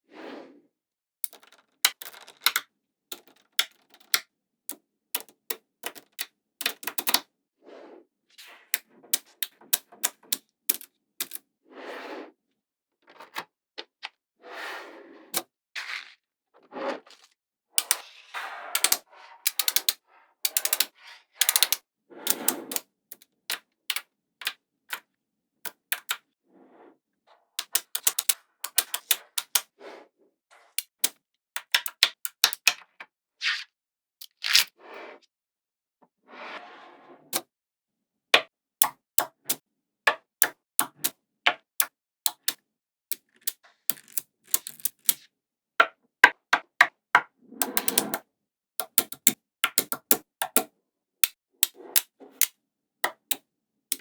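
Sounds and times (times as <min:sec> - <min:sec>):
magnetic balls clicking together: 0:01.2 - 0:04.2, 0:05.2 - 0:07.2, 0:09.1 - 0:11.4, 0:17.8 - 0:18.0, 0:18.8 - 0:23.2, 0:25.7 - 0:26.2, 0:27.6 - 0:29.6, 0:30.8 - 0:32.8, 0:40.4 - 0:41.1, 0:41.8 - 0:45.2, 0:47.6 - 0:48.2, 0:48.8 - 0:54.0.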